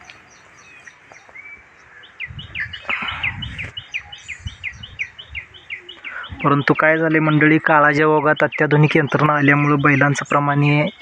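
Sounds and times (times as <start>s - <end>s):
bird chirping fast falling calls: 0.0s - 11.0s.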